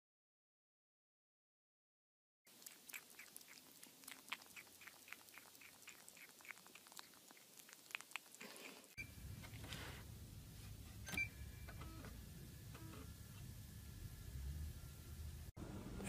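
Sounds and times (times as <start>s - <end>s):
low steady hum: 9.0s - 16.0s.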